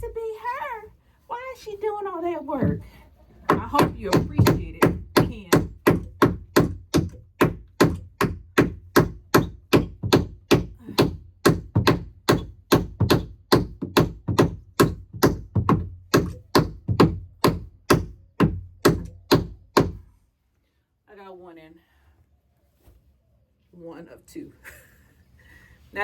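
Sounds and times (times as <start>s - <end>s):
hammer driving nail into wood: 3.5s - 20.0s.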